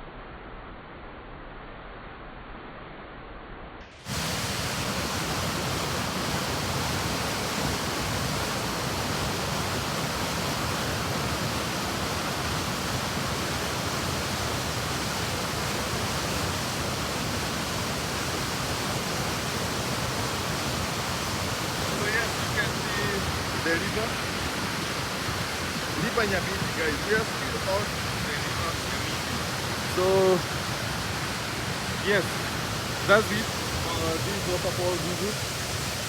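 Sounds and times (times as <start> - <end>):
waterfall rushing: 4.0 - 36.0.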